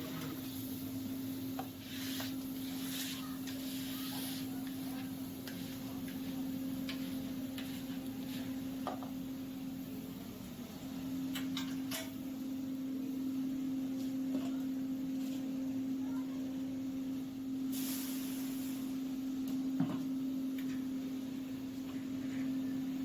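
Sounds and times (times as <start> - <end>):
steady machine hum: 0.0 - 23.0
short burst of hiss: 17.7 - 19.0.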